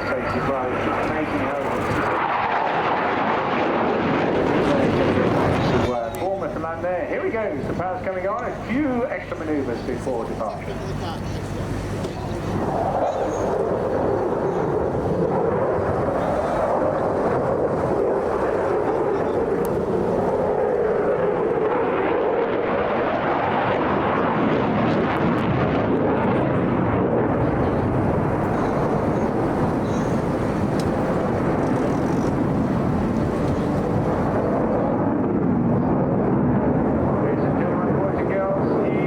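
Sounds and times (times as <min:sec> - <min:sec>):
fighter jet flying: 0:00.0 - 0:39.0.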